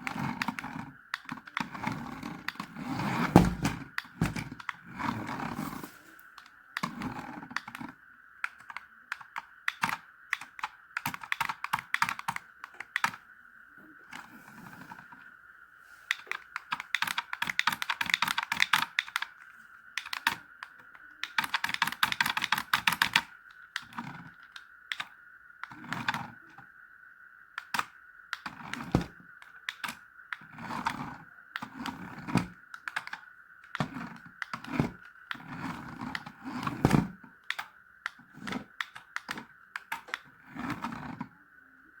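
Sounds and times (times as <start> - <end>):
steady high-pitched whine: 0.0 - 42.0
knocks: 3.3 - 4.4
rapid clicking: 16.1 - 19.4, 21.2 - 24.1.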